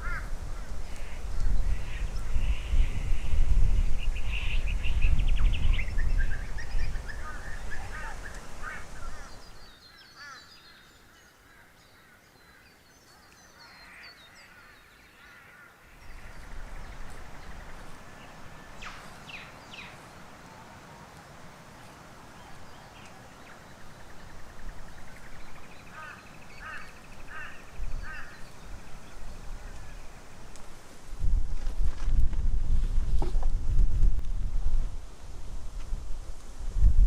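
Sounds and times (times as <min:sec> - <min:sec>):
wind gusting on microphone: 0:00.0 - 0:09.7, 0:16.0 - 0:37.0
birds chirping: 0:00.0 - 0:30.7.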